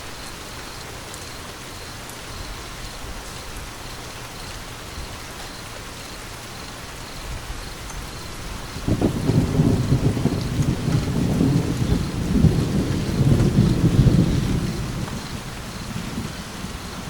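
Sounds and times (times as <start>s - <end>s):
steady rain: 0.0s - 17.0s
thunder rumbling: 8.4s - 17.0s.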